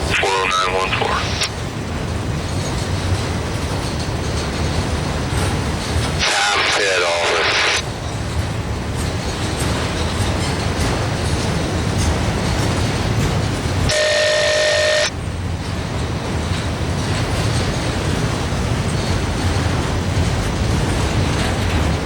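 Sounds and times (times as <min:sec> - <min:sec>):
freight train rumbling past: 0:00.0 - 0:22.0
short steady tone: 0:13.9 - 0:15.1.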